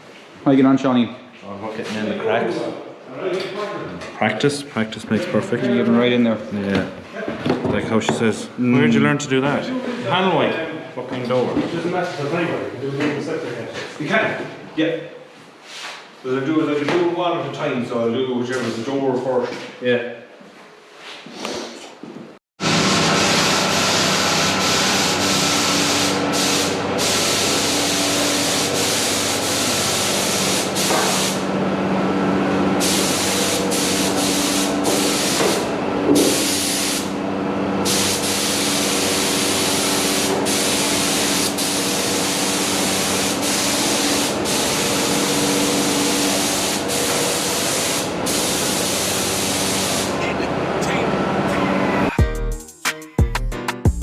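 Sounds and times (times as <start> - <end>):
compressor humming: 22.6 - 52.2
paint spray gun hissing: 22.9 - 31.4, 32.8 - 37.1, 37.8 - 50.2.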